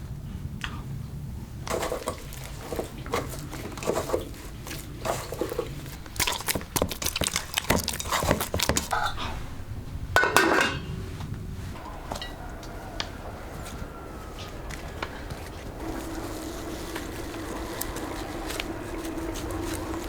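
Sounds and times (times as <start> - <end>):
utensils and dishes clinking: 1.7 - 9.2, 10.2 - 11.1, 11.8 - 12.5
scraping or rustling: 1.7 - 20.0.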